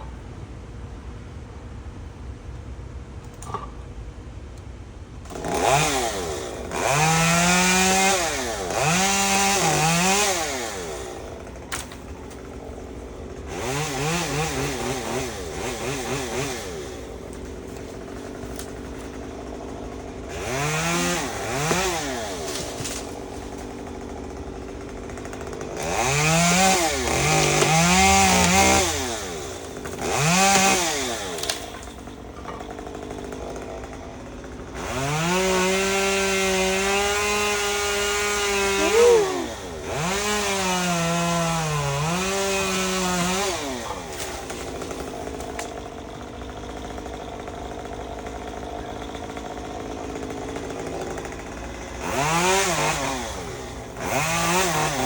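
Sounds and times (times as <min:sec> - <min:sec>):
chainsaw revving and idling: 0:05.3 - 0:55.0.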